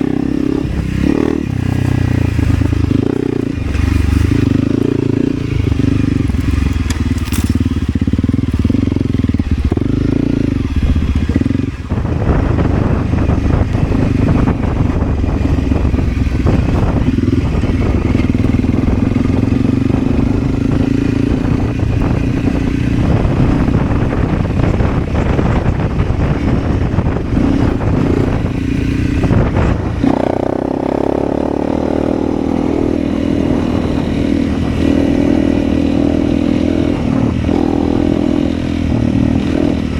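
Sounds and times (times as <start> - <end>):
motorcycle engine running: 0.0 - 39.9
rough crackling clatter: 0.4 - 31.0.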